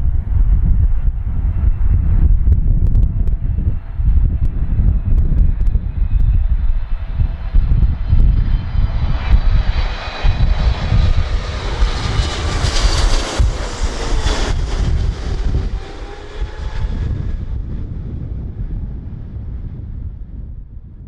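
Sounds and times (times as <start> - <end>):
wind buffeting microphone: 0.0 - 21.0
jet engines whining: 3.5 - 19.9.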